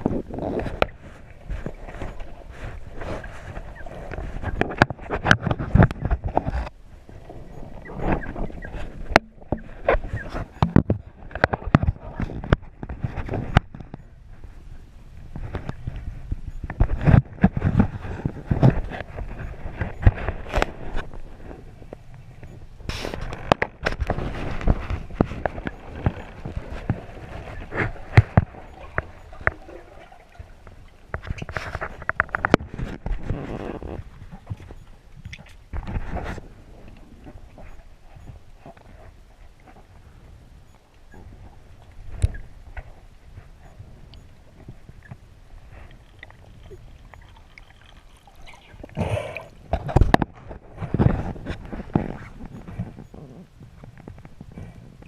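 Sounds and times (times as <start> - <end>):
water noise: 0.0 - 55.0
oars knocking against boat: 7.6 - 14.1.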